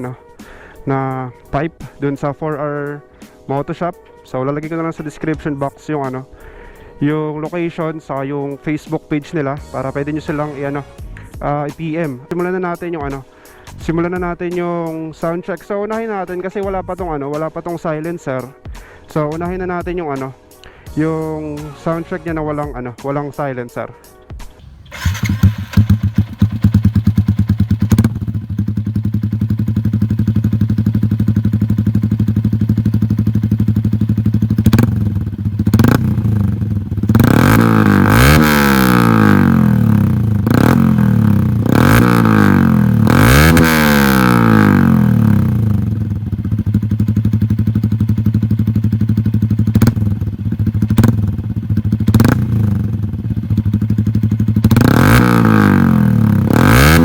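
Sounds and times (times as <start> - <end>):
motorcycle engine idling and revving: 24.5 - 57.0.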